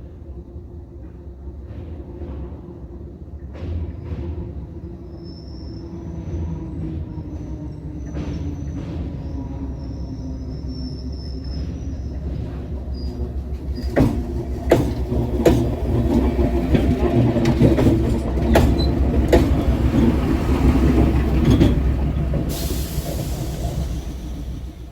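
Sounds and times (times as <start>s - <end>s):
rail vehicle rumbling over bridge: 0.0s - 24.9s
wheels clacking over rail joints: 11.5s - 24.9s
high hiss: 22.5s - 24.9s.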